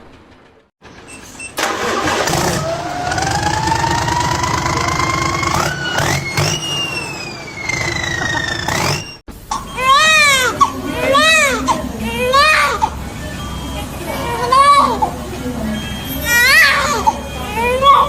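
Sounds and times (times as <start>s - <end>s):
noisy running sound: 1.6s - 9.2s
motor whine revving: 1.7s - 9.2s.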